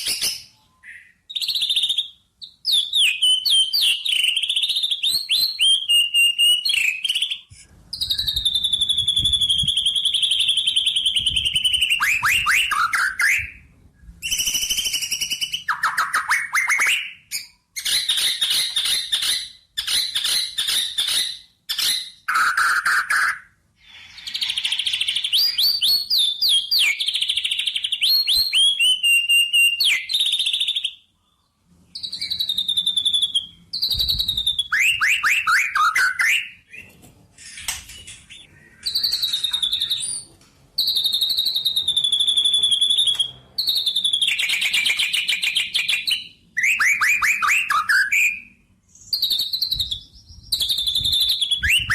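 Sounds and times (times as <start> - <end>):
bird singing trills: 38.0 - 51.9.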